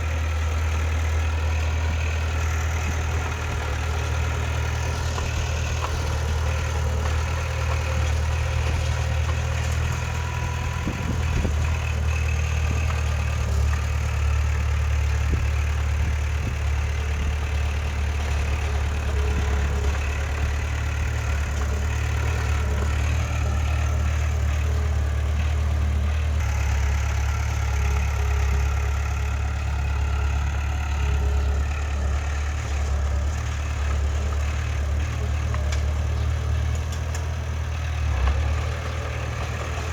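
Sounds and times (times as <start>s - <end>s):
heavy diesel engine droning: 0.0s - 39.9s.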